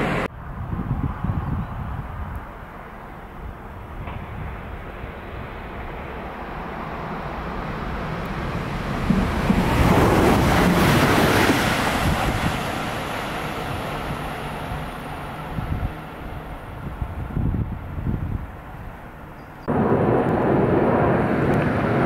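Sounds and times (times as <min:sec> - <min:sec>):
electric train rushing past: 0:00.0 - 0:00.3, 0:04.1 - 0:17.5.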